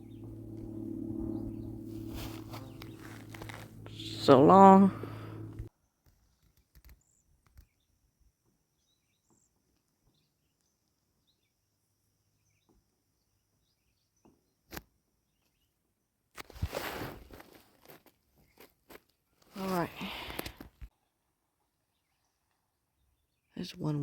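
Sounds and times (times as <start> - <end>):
rustling: 1.6 - 5.7, 16.4 - 20.6.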